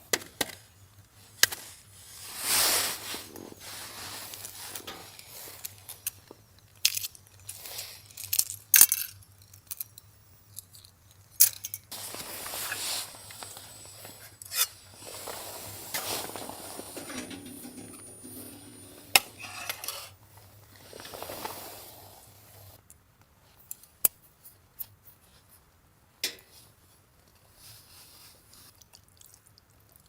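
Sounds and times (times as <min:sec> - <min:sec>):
objects clicking and rustling: 0:04.3 - 0:21.6.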